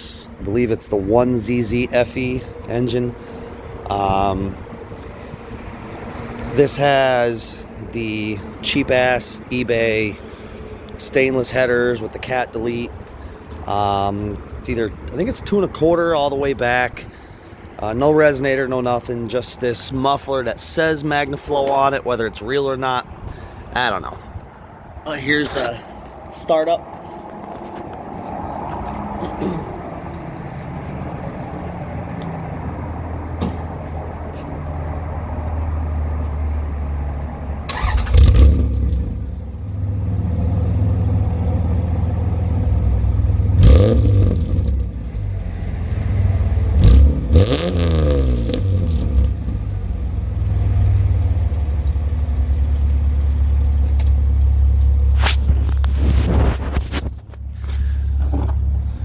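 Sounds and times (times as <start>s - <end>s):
car engine idling: 37.6s - 47.7s, 48.4s - 59.0s
car engine starting: 37.6s - 59.0s
throttle revs: 37.7s - 41.4s, 43.1s - 45.0s, 46.2s - 49.8s.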